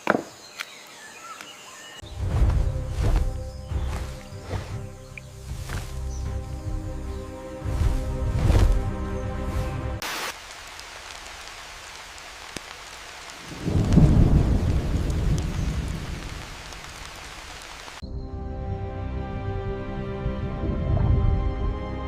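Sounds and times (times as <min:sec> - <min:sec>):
steady rain falling: 0:02.1 - 0:18.0
thunder rumbling: 0:13.3 - 0:17.2.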